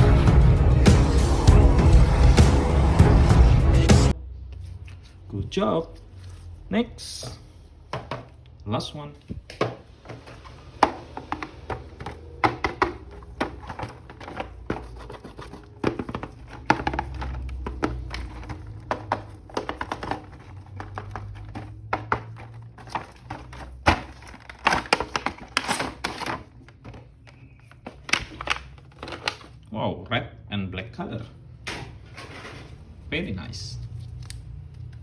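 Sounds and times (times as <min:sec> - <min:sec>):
packaging crinkling: 0:09.9 - 0:29.6.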